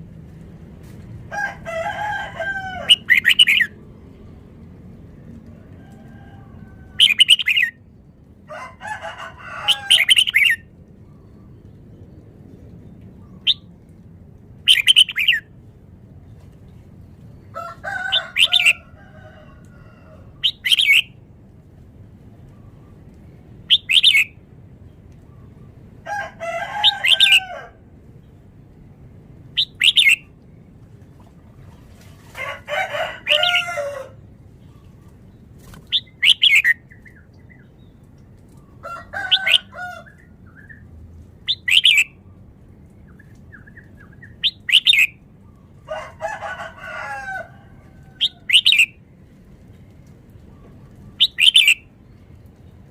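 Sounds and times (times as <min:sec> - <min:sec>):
bird singing whistled phrases: 0:35.9 - 0:36.8, 0:43.5 - 0:45.2, 0:51.2 - 0:51.8.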